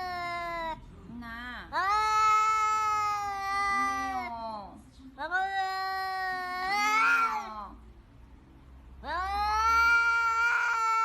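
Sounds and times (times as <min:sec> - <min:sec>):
cat meowing: 0:00.0 - 0:00.8, 0:01.8 - 0:07.8, 0:09.0 - 0:11.0.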